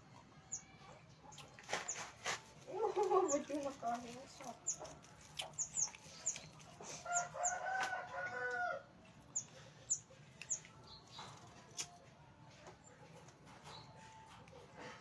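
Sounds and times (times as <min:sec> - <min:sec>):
small birds chirping: 0:00.0 - 0:15.0
rooster crowing: 0:07.0 - 0:08.9.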